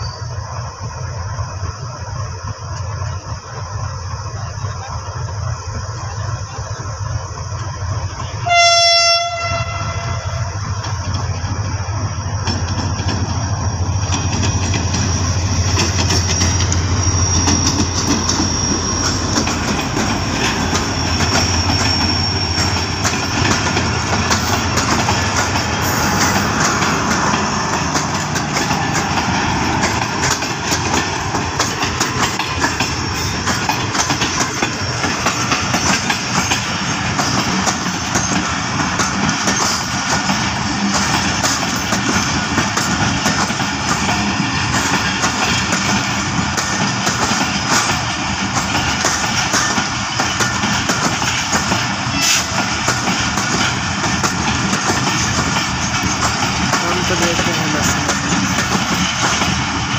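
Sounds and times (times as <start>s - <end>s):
high wheel squeal: 0.0s - 0.6s, 13.6s - 31.3s, 32.8s - 38.6s
train horn blast: 8.3s - 10.6s, 52.1s - 52.5s
wheels clacking over rail joints: 10.3s - 59.9s.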